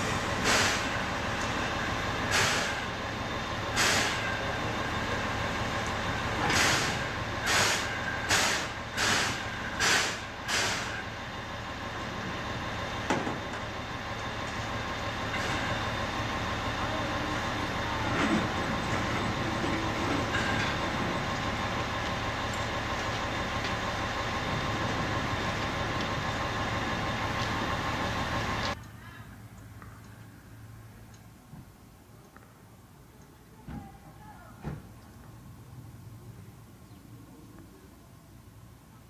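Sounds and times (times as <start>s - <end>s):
sharp hissing steam puffs: 0.0s - 1.2s, 2.1s - 3.0s, 3.6s - 4.5s, 6.4s - 11.1s
steam locomotive hissing: 0.0s - 11.2s.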